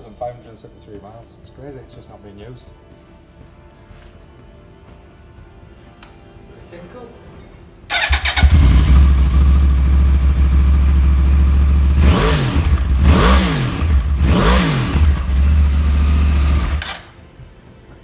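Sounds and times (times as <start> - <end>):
motorcycle engine idling: 7.9 - 17.2
motorcycle engine revving: 7.9 - 17.2.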